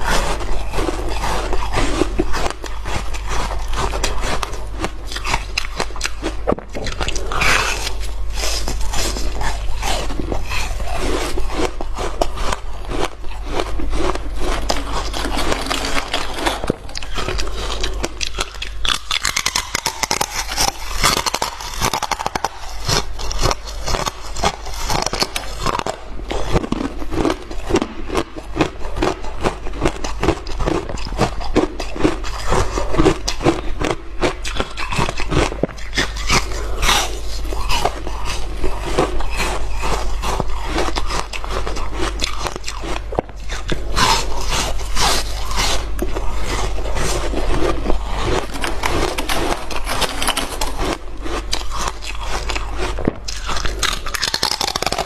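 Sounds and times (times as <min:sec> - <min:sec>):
ice being chewed: 0:00.0 - 0:55.0
steady low hum: 0:00.0 - 0:55.0.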